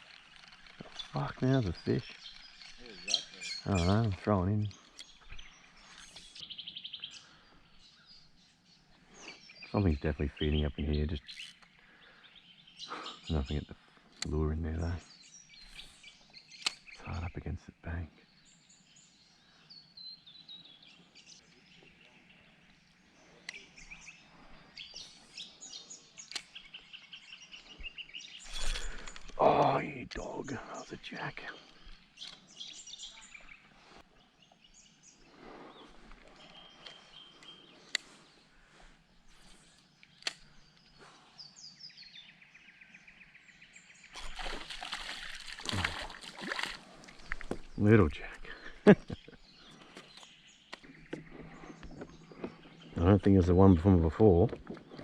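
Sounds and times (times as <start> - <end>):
faint birds chirping: 0.0 - 55.0
sharp clicks: 40.0 - 40.5
water splashing and sloshing: 44.2 - 47.8.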